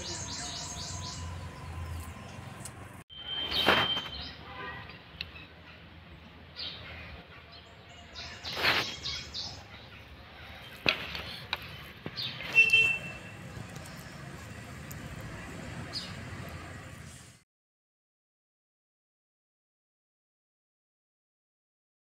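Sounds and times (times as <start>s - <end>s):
small birds chirping and trilling: 0.0s - 16.8s
brief loud noisy sounds: 3.4s - 4.3s.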